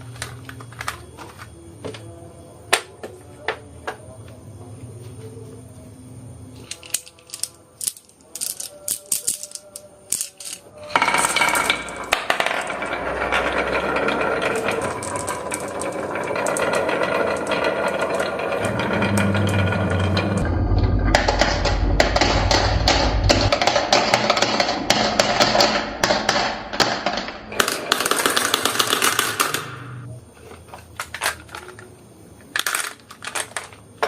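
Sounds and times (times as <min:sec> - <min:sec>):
marbles rattling on a track: 0:06.7 - 0:20.5, 0:21.2 - 0:29.8, 0:32.5 - 0:34.0.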